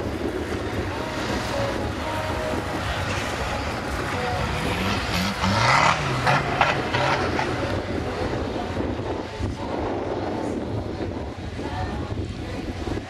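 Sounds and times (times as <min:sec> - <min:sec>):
wind buffeting microphone: 0:00.0 - 0:13.0
off-road engine revving: 0:00.3 - 0:09.2.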